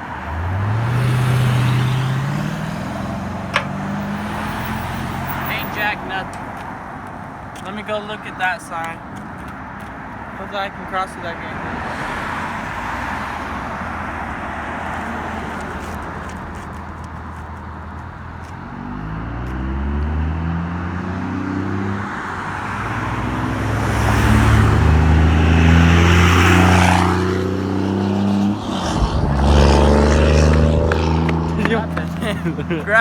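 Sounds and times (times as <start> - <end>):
vehicle engine passing: 0.0 - 6.6, 18.5 - 33.0
tyre noise: 1.0 - 7.8, 26.2 - 33.0.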